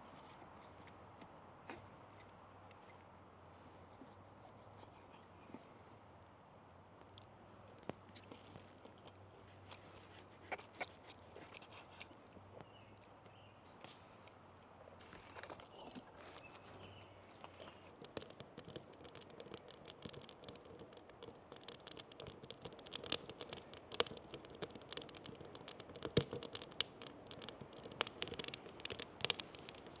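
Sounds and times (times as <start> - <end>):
wood fire crackling and popping: 17.4 - 30.0.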